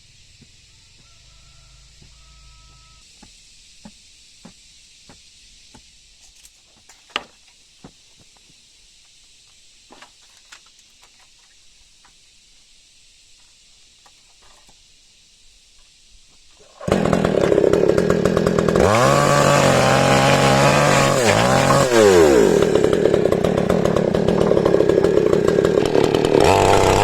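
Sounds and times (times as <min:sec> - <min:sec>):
faint high hiss: 0:00.0 - 0:16.8.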